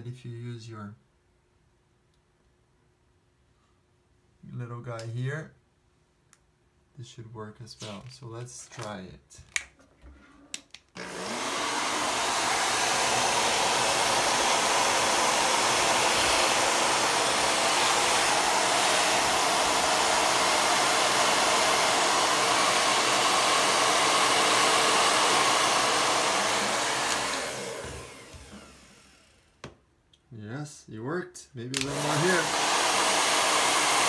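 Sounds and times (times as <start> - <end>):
hair dryer blowing: 11.0 - 29.6, 31.7 - 34.0.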